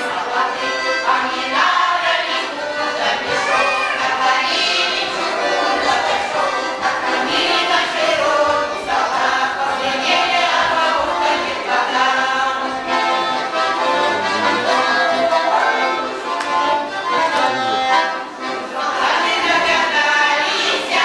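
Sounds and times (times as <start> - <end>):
accordion: 0.0 - 21.0
choir singing folk song: 0.0 - 21.0.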